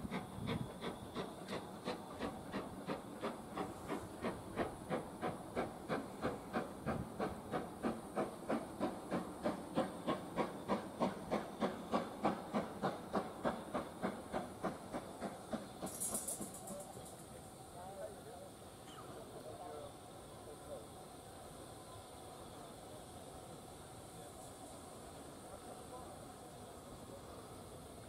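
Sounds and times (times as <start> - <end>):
steam hissing: 0.0 - 28.0
steam locomotive chuffing: 0.0 - 28.0.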